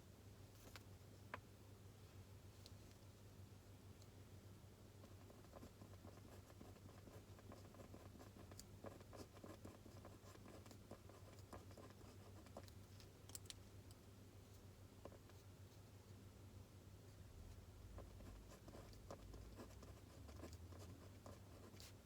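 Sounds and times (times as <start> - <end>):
low room hum: 0.0 - 22.0
pencil scratching on paper: 5.0 - 12.7, 18.0 - 22.0.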